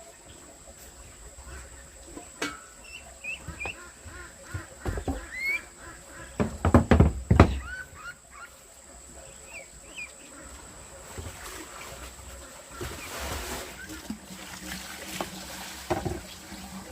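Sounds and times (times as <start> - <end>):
birds chirping: 2.6 - 10.9
knocks and thumps: 3.4 - 5.4, 6.4 - 7.8, 15.9 - 16.2.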